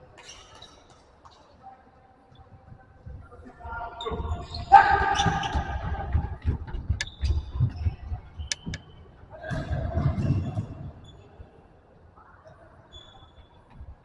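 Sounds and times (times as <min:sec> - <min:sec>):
shoe squeaks on court: 0:08.4 - 0:08.9.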